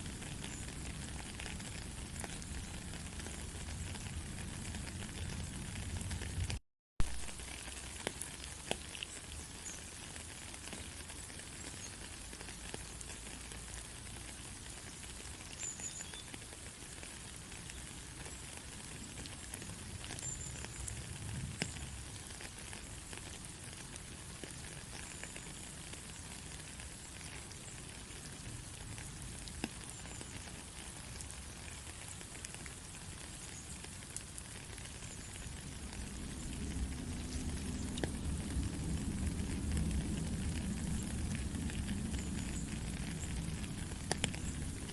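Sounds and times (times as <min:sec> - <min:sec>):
steady rain hiss: 0:00.0 - 0:44.9.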